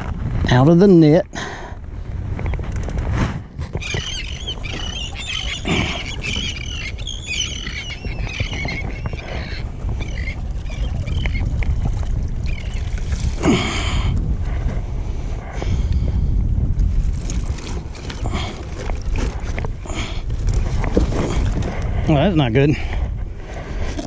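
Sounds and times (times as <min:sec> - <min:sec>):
wind buffeting microphone: 0:00.0 - 0:24.0
squawking bird calls: 0:03.8 - 0:11.6.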